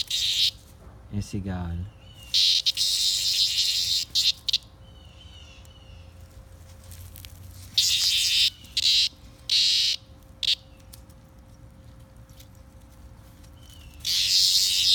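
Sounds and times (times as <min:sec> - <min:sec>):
cicada buzzing in bursts: 0:00.0 - 0:00.6, 0:02.3 - 0:04.8, 0:07.6 - 0:10.6, 0:14.0 - 0:14.9.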